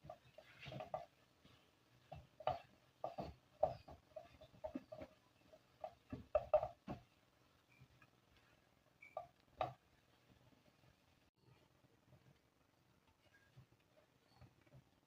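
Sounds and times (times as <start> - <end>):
utensils tapping against a bowl: 0.0 - 7.0.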